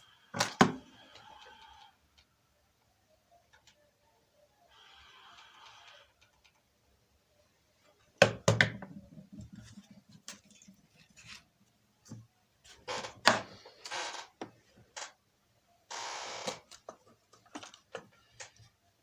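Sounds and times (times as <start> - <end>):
objects knocking and clattering: 8.2 - 11.4.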